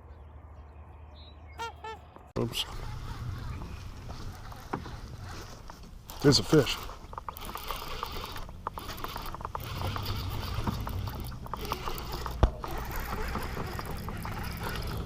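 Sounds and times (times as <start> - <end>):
fishing reel clicking: 6.1 - 15.0.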